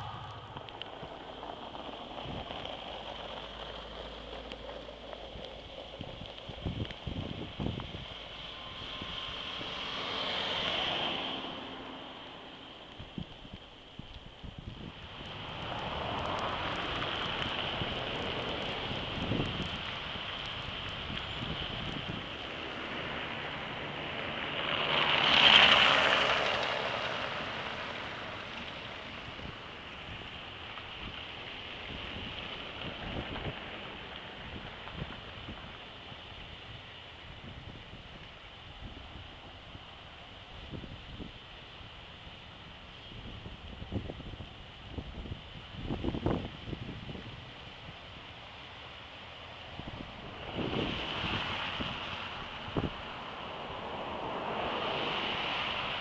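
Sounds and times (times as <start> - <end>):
wind buffeting microphone: 0.0 - 11.0, 12.4 - 39.9, 43.1 - 48.1, 49.6 - 56.0
tyres hissing on slush: 15.0 - 36.3, 48.4 - 56.0.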